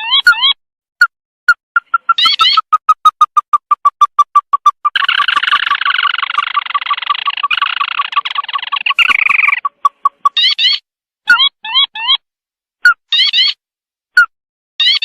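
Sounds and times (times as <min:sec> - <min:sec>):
bird call harsh chattering: 0:01.8 - 0:12.2.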